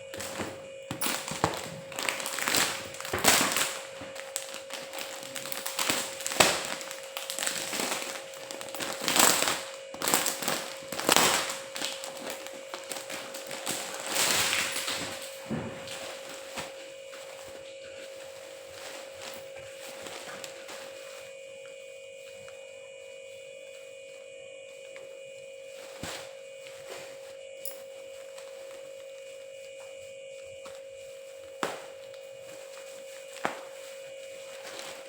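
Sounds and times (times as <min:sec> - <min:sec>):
rustling and tapping of handling: 0:00.0 - 0:22.6
faint hum: 0:00.0 - 0:35.0.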